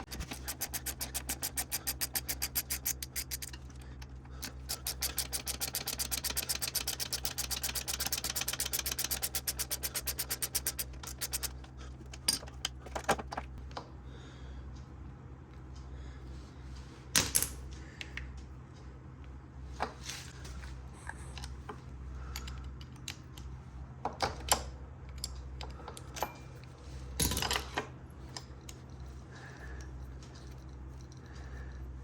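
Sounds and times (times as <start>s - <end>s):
metal parts clinking: 0.0s - 13.5s
steady low hum: 0.0s - 32.0s.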